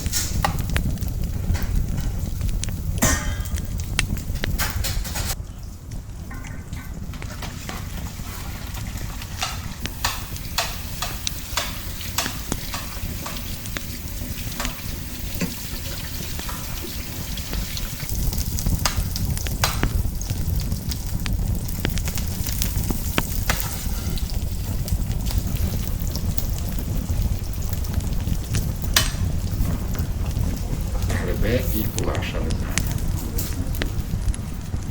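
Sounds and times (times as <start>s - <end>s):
steady low rumble: 9.8s - 34.9s
utensil scraping a pan: 23.3s - 24.5s.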